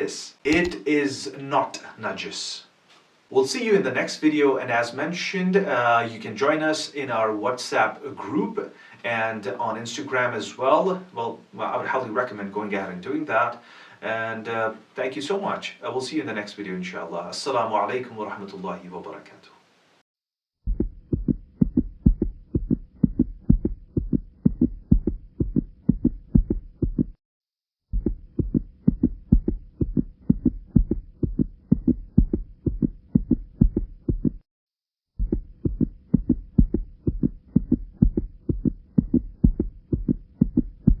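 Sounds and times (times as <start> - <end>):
rhythmic low thumping beat: 20.7 - 27.2, 27.9 - 34.4, 35.2 - 41.0.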